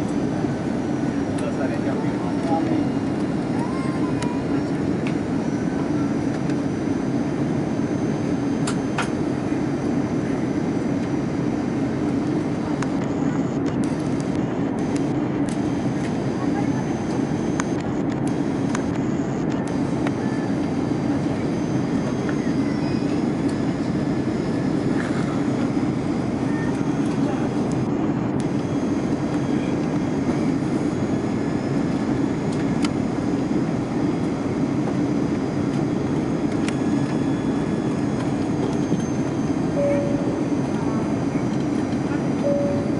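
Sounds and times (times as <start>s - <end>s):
airliner cabin hum: 0.0s - 42.9s
faint high whining tones: 0.0s - 42.9s.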